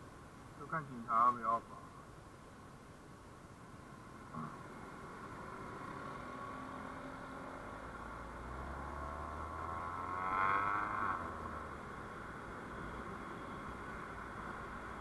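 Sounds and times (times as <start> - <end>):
road traffic noise: 0.0 - 15.0
vehicle passing close: 4.3 - 15.0.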